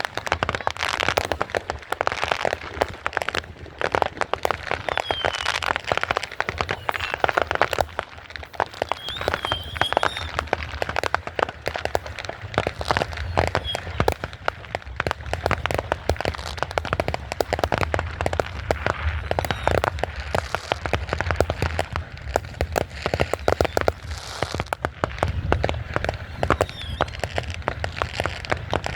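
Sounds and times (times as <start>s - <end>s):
fireworks crackling and banging: 0.0s - 28.9s
high firework whistle: 4.0s - 14.4s, 18.3s - 21.0s, 22.6s - 28.9s.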